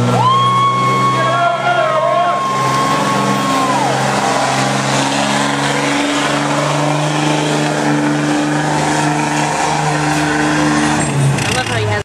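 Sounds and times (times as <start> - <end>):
diesel truck engine revving: 0.0 - 12.0.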